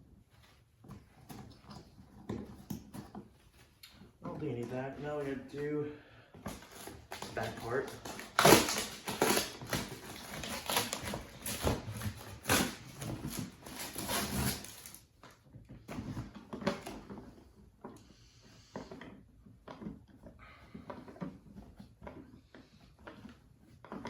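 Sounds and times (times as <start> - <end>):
packaging rustling and crinkling: 0.2 - 17.4.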